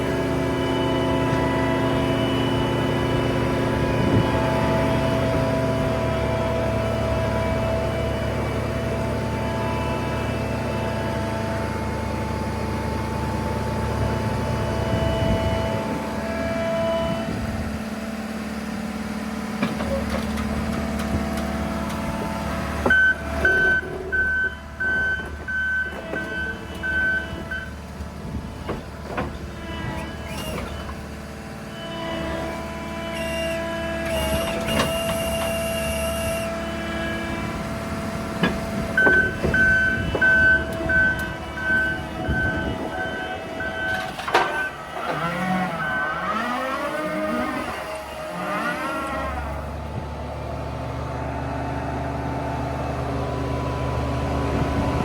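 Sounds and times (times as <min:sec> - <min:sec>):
diesel engine running under load: 0:00.0 - 0:55.0
backup alarm beeping: 0:22.9 - 0:27.8, 0:39.0 - 0:44.8.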